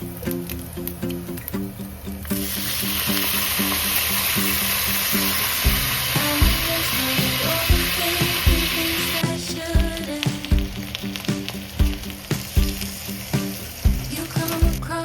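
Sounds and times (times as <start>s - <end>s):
frying pan sizzling: 2.5s - 9.6s.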